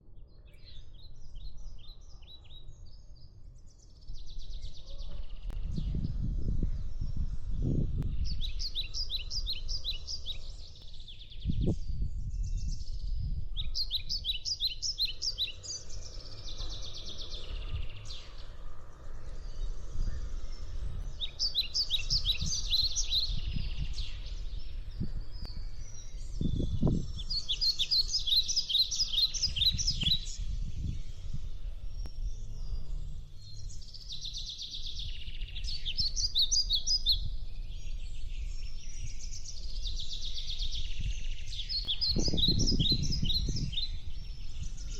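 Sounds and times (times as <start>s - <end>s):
birds chirping: 0.1s - 44.9s
steady low rumble: 5.4s - 14.2s, 14.9s - 27.6s.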